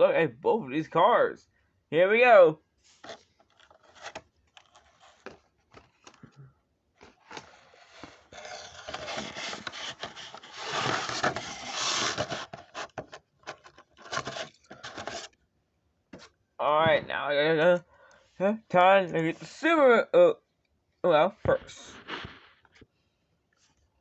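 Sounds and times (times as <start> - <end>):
packaging rustling and tearing: 3.0 - 6.2, 7.0 - 15.3
clicks and scrapes of packaging: 3.0 - 6.3, 7.0 - 15.4.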